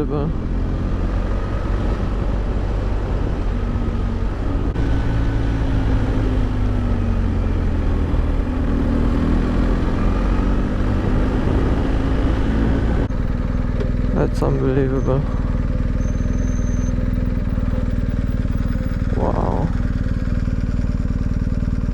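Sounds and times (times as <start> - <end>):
motorcycle engine running: 0.0 - 21.9
wind rush: 1.4 - 13.4.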